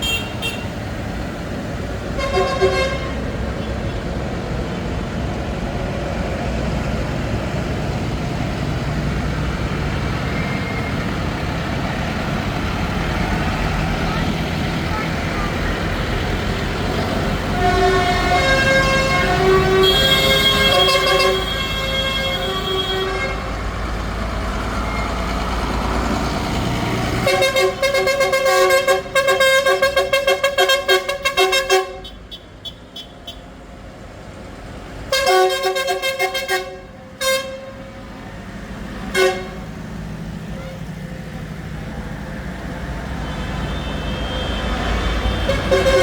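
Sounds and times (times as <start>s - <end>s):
vehicle horns tooting: 0.0s - 0.9s, 2.1s - 4.0s, 17.4s - 23.6s, 27.2s - 33.5s, 35.1s - 37.8s, 39.0s - 39.8s, 40.5s - 41.0s, 43.0s - 46.0s
tractor engines rumbling: 0.0s - 46.0s.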